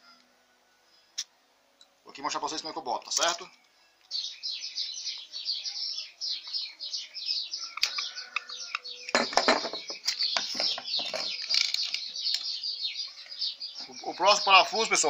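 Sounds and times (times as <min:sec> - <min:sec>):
small birds chirping: 0:00.8 - 0:15.0
knocks on wooden bench: 0:09.2 - 0:11.1.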